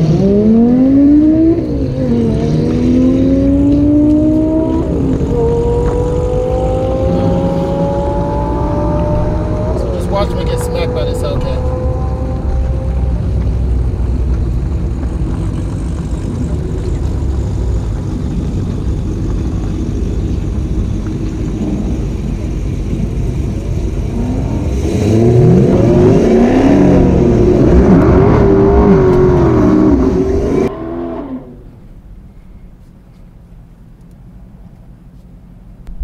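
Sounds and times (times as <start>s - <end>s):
car engine rumbling and revving: 0.0s - 36.0s.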